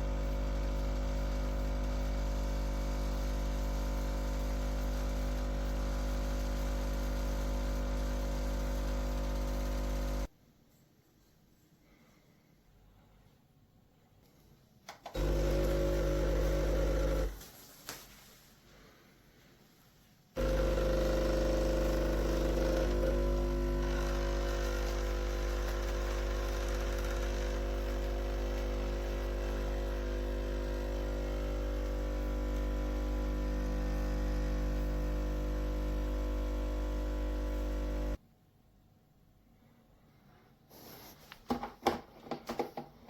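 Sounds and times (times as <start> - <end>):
espresso machine pump humming: 0.0 - 10.3, 15.2 - 17.4, 20.4 - 38.2.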